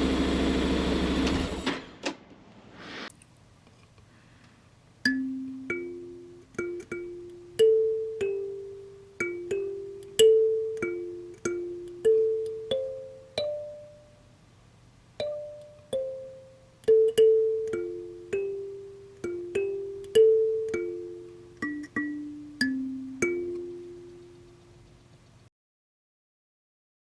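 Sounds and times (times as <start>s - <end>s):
slow keyboard melody: 5.1s - 14.3s, 15.2s - 25.2s.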